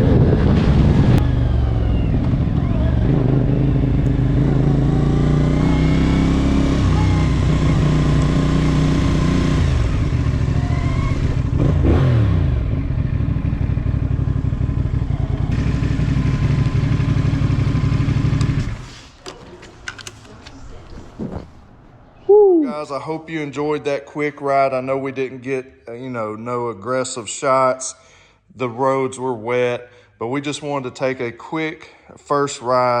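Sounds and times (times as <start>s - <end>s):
wind noise: 0.0s - 3.6s
motorcycle engine under way: 0.0s - 18.9s.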